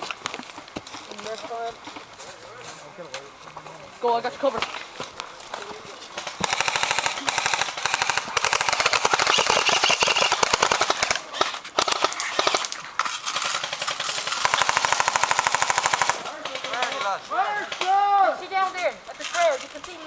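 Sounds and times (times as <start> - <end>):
airsoft rifle rapid shots: 6.2 - 18.2.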